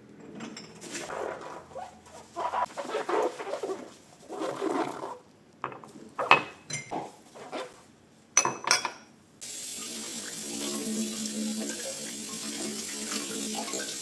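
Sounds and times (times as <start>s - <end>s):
dishes and glasses clinking: 5.6s - 6.9s, 8.4s - 9.1s
tap water running: 9.4s - 14.0s.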